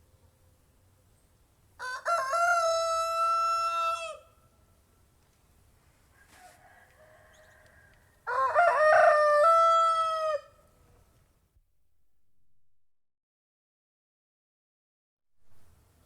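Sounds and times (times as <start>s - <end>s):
rooster crowing: 1.8s - 4.4s, 6.1s - 10.7s.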